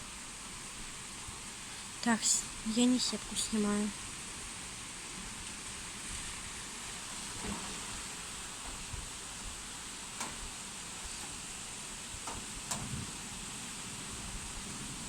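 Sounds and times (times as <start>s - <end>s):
heavy rain hissing: 0.0s - 15.0s
sharp clicks and knocks: 10.2s - 13.1s.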